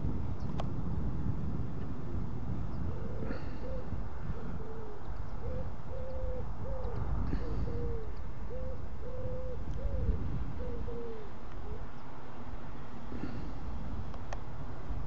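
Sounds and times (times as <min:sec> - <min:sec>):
wind rumble on microphone: 0:00.0 - 0:15.0
bird hooting and cooing: 0:02.7 - 0:12.0.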